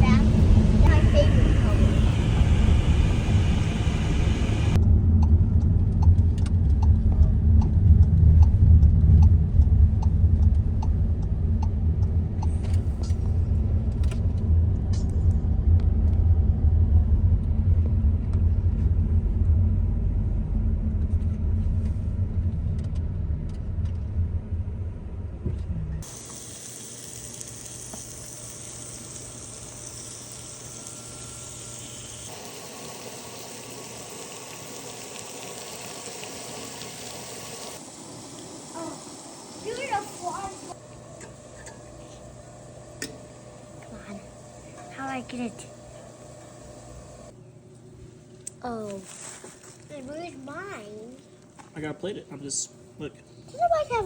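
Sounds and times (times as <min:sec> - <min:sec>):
loud low rumble: 0:00.0 - 0:26.0.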